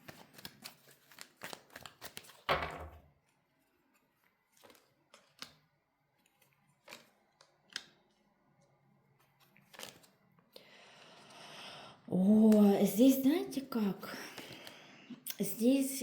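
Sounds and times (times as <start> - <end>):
cards shuffling and rustling: 0.0 - 2.6, 3.2 - 8.2, 9.1 - 10.4.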